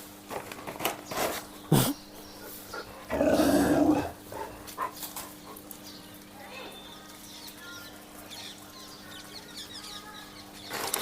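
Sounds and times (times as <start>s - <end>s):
puppies growling: 2.7s - 5.0s.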